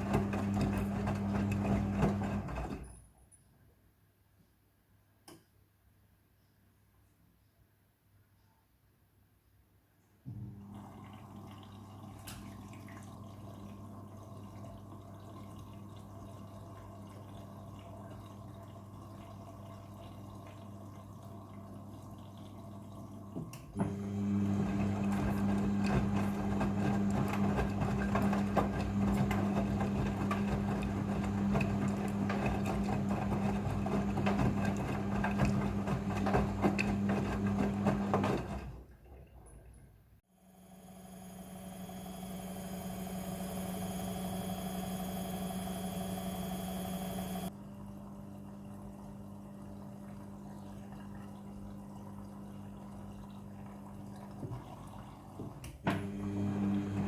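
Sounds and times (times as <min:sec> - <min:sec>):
washing machine running: 0:00.0 - 0:02.9, 0:10.3 - 0:39.4, 0:40.3 - 0:57.0.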